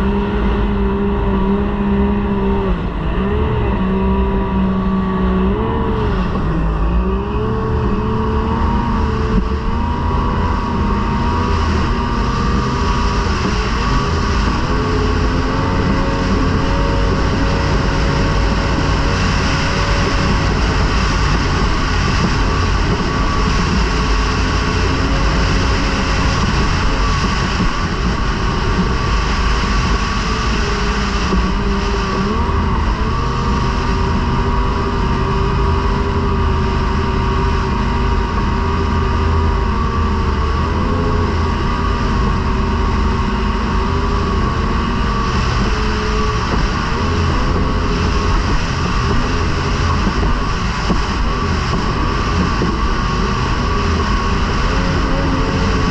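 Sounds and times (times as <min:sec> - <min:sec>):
outboard motor running flat out: 0:00.0 - 0:55.9
rush of wind and water: 0:00.0 - 0:55.9.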